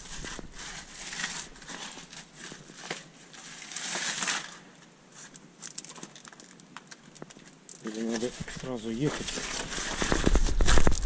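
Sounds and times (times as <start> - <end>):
small clicks and knocks: 5.3 - 8.0
feet crunching on loose stone: 8.0 - 11.0.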